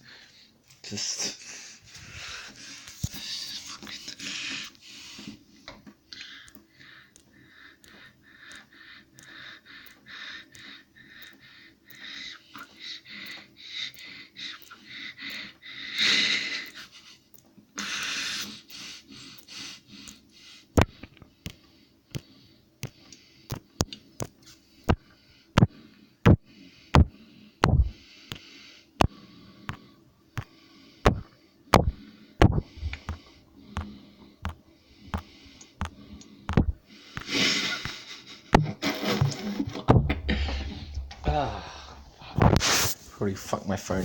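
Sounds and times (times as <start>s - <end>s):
short hissing: 40.2s - 43.1s.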